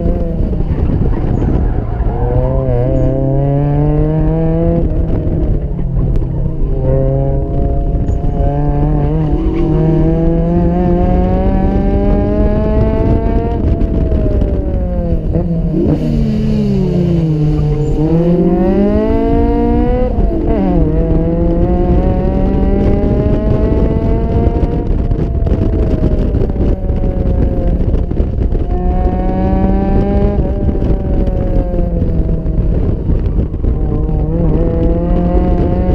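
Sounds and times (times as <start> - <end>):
car engine accelerating hard: 0.0 - 35.9.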